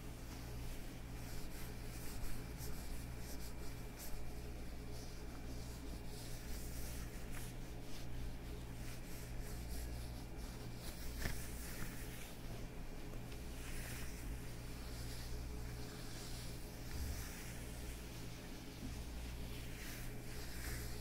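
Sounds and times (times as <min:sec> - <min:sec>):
leather gloves rubbing together: 0:00.1 - 0:21.0.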